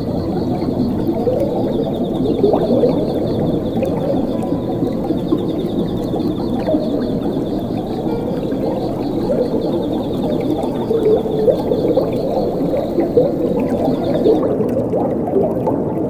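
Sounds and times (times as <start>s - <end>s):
cricket trilling: 0.0s - 14.4s
water gurgling and bubbling: 0.0s - 16.0s.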